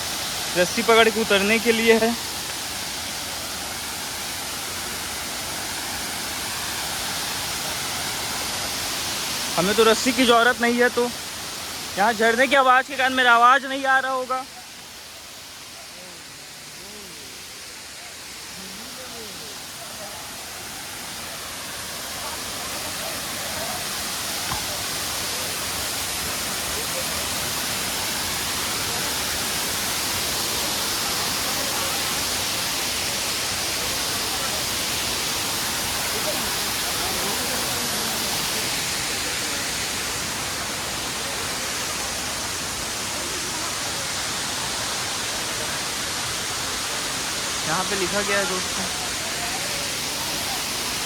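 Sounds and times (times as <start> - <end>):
waterfall rushing: 0.0 - 51.0
faint voices: 14.6 - 51.0.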